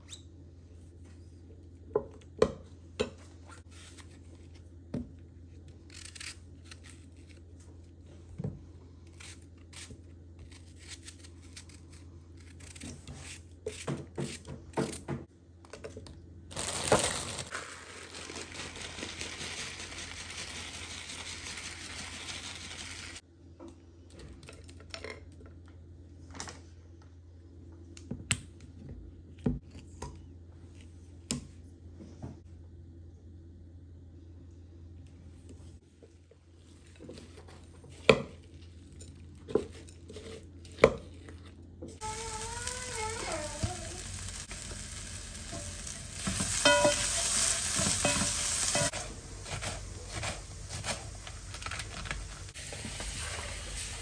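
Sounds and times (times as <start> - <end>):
constant low hum: 0.0 - 54.0
crinkling or tearing: 16.5 - 23.2, 48.7 - 52.6.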